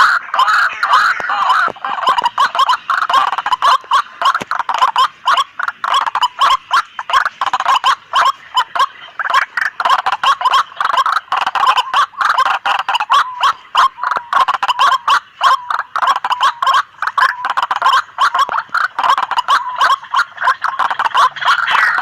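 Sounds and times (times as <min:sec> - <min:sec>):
waterhens calling harshly: 0:00.0 - 0:22.0.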